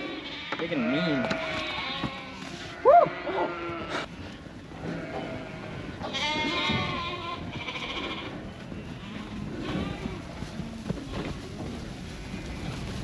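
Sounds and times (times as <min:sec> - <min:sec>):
sheep bleating: 0:00.0 - 0:04.1, 0:04.8 - 0:10.3.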